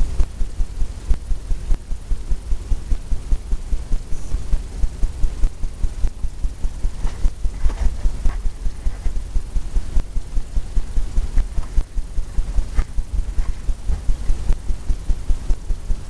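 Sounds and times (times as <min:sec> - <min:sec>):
brush scrubbing: 0:06.9 - 0:09.3, 0:11.2 - 0:14.6.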